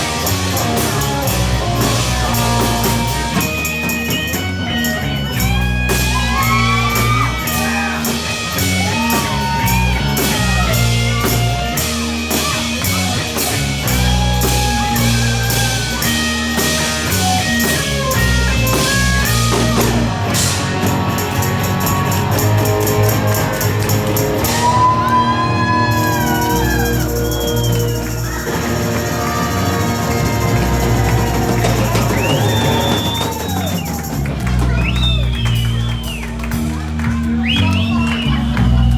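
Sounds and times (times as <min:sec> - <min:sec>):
bass guitar: 0:00.0 - 0:38.9
drum-kit beat: 0:00.0 - 0:38.9
guitar with bending notes: 0:00.0 - 0:38.9.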